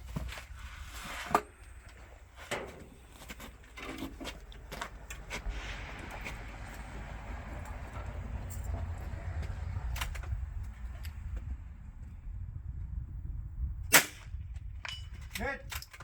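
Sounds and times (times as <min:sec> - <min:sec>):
sharp crack: 0:13.9 - 0:14.4
rifle handling clicks and knocks: 0:14.8 - 0:16.0.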